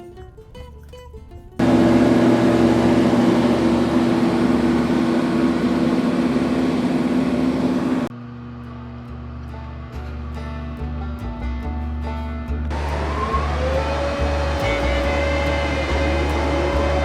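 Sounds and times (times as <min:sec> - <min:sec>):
planer machine running: 0:01.6 - 0:08.1, 0:12.7 - 0:17.0.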